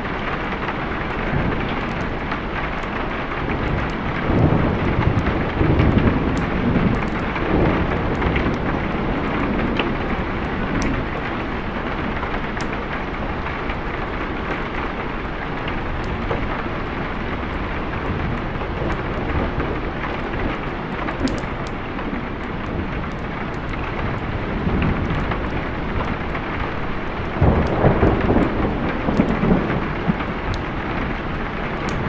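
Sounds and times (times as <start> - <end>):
heavy rain: 0.0 - 32.0
thunder rumbling: 0.0 - 32.0.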